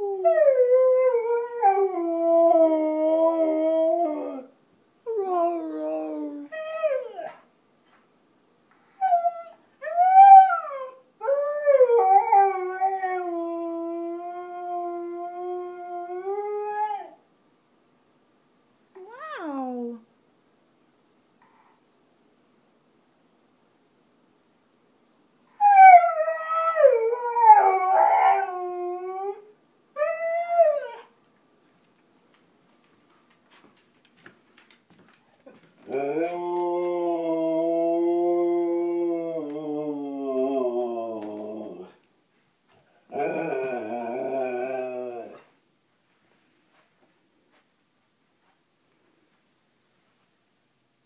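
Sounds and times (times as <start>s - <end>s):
husky howling: 35.8s - 42.0s, 43.1s - 45.5s.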